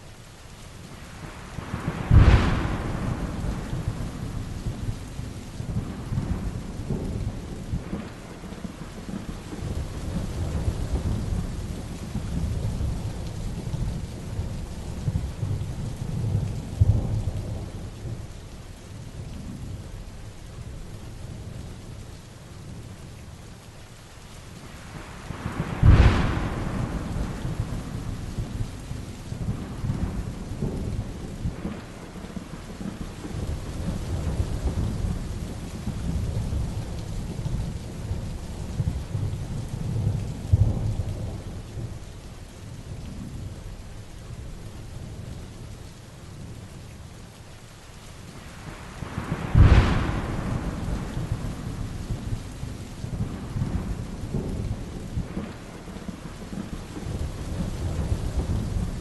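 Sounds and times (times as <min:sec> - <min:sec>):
heavy rain: 0:00.0 - 0:59.0
low thunder rumbling: 0:01.1 - 0:18.4, 0:24.8 - 0:45.4, 0:48.4 - 0:59.0
sharp thunderclap: 0:01.6 - 0:05.0, 0:25.3 - 0:37.0, 0:49.0 - 0:59.0.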